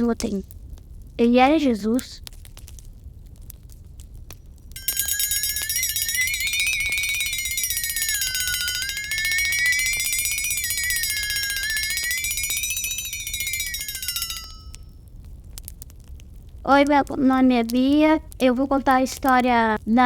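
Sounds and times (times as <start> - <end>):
wavering high tone: 4.8 - 14.8.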